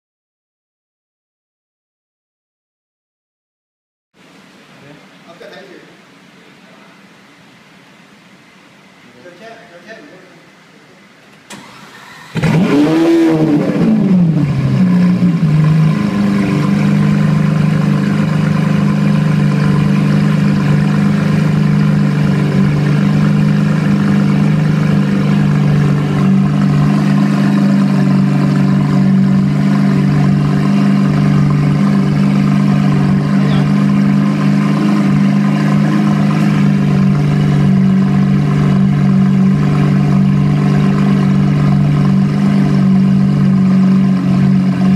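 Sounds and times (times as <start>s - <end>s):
sports car engine starting and idling: 11.2s - 44.9s.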